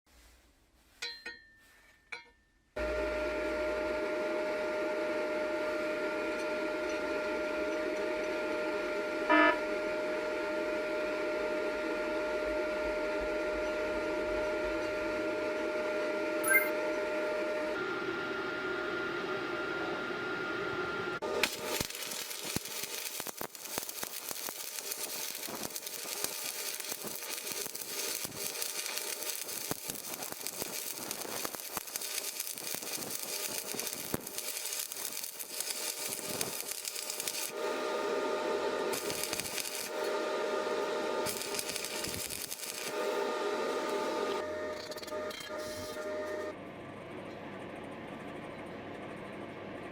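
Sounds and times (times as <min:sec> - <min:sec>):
steady hum with high tone: 0:02.8 - 0:19.8
welding arc crackling: 0:21.2 - 0:40.2, 0:40.8 - 0:44.4.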